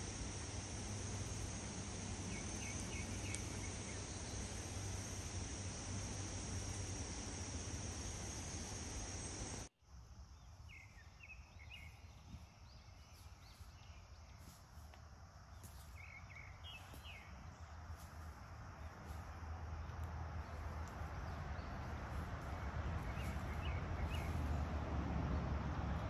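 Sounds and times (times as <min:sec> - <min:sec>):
steady hiss: 0:00.0 - 0:09.7, 0:10.6 - 0:24.9
high insect trill: 0:00.0 - 0:26.0
woodland ambience: 0:00.0 - 0:26.0
small birds chirping: 0:01.8 - 0:06.9, 0:15.5 - 0:17.8, 0:19.8 - 0:24.7.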